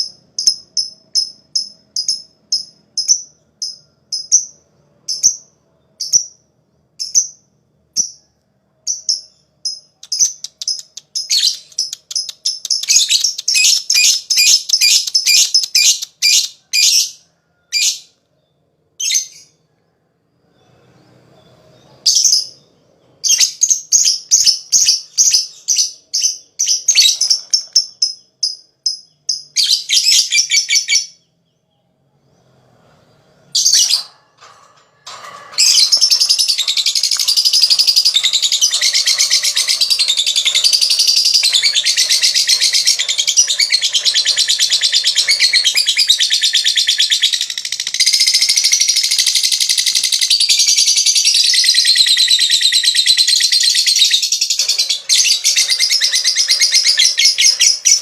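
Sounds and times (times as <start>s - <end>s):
long rapid bird chatter: 32.9s - 58.0s
bird chirping and trilling: 33.6s - 58.0s.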